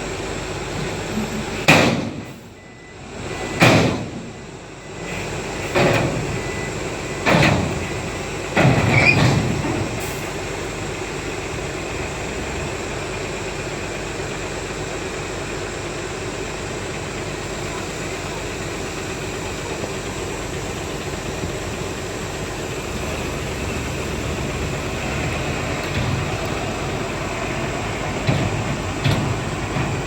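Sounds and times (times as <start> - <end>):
diesel earthmoving machinery running: 0.0 - 30.0
loud knocks and bangs: 1.7 - 2.3, 28.1 - 30.0.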